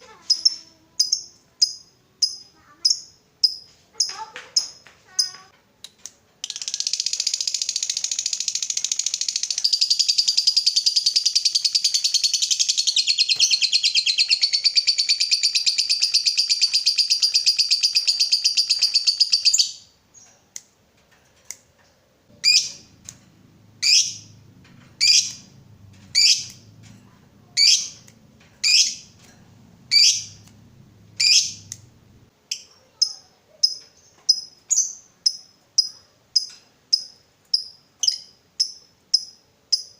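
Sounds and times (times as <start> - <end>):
lovebird chattering trill: 6.5 - 20.2, 22.4 - 22.9, 23.8 - 24.3, 25.0 - 25.5, 26.1 - 26.6, 27.4 - 29.2, 29.9 - 30.5, 31.2 - 31.9
bird sharp calls: 25.0 - 25.5.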